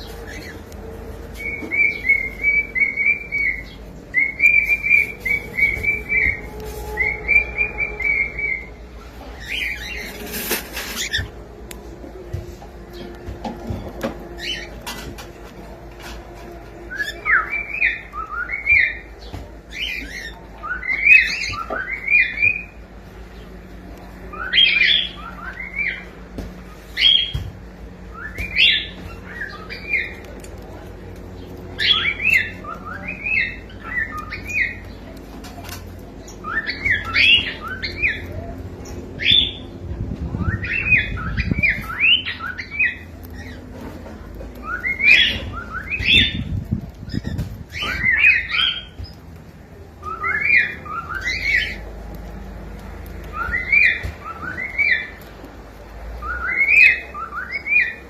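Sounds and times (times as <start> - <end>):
cockatiel chirping and whistling: 1.4 - 8.7, 9.4 - 11.3, 16.9 - 22.8, 24.3 - 26.1, 28.1 - 30.2, 31.8 - 34.8, 36.4 - 38.3, 40.4 - 43.6, 44.6 - 49.2, 50.0 - 51.9, 53.2 - 55.2, 56.2 - 58.0.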